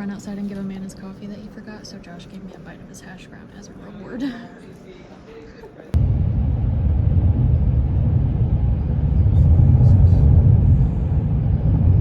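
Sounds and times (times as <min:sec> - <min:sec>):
car road and engine rumble: 0:06.0 - 0:12.0.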